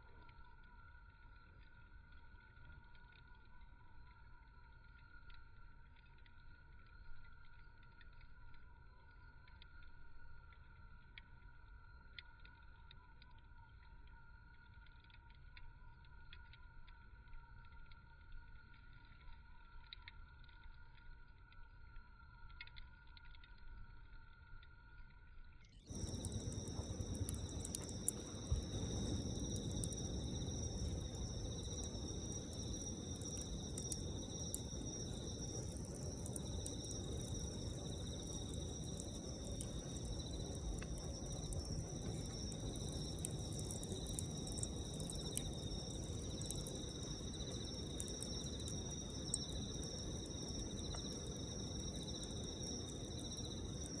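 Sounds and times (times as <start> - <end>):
low steady rumble: 23.8 - 54.0
campfire crackling: 25.8 - 54.0
fire popping: 25.8 - 54.0
insects trilling: 25.9 - 54.0.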